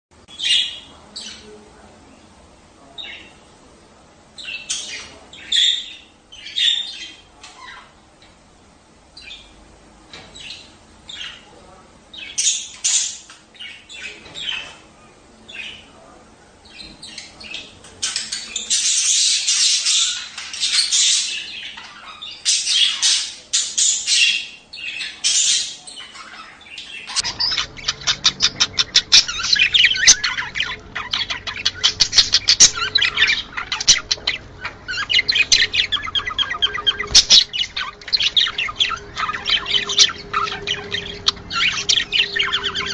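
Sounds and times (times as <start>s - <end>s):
budgerigars chattering and squawking: 0.3s - 1.6s, 2.8s - 3.5s, 4.4s - 8.0s, 10.2s - 42.9s
high warbling: 27.2s - 42.9s.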